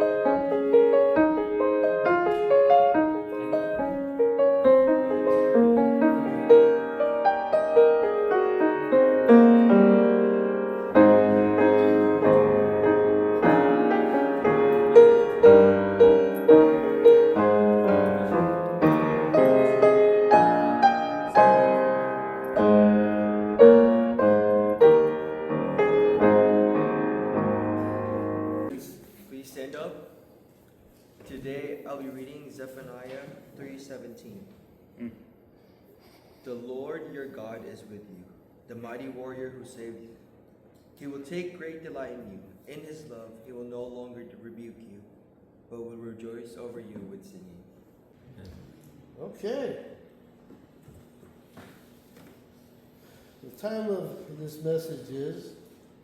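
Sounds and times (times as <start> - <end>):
piano music: 0.0 - 28.7.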